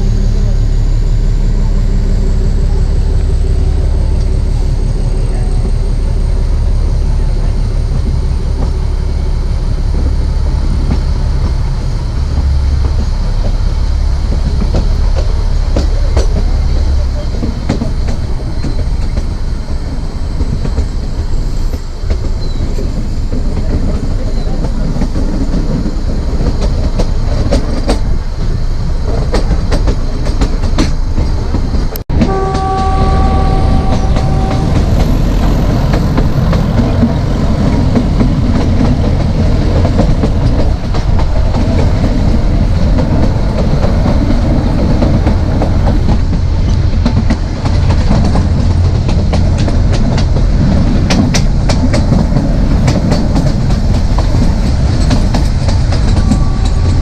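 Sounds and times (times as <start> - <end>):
train rumbling: 0.0 - 57.0
wheels clattering over rail joints: 9.9 - 57.0
locomotive horn: 32.1 - 36.8, 56.0 - 57.0.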